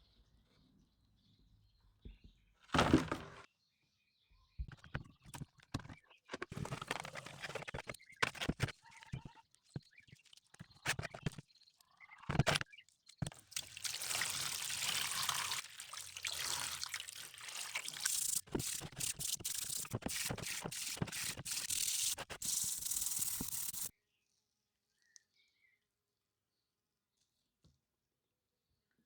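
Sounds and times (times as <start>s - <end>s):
brush scrubbing rust off metal: 14.0s - 23.9s.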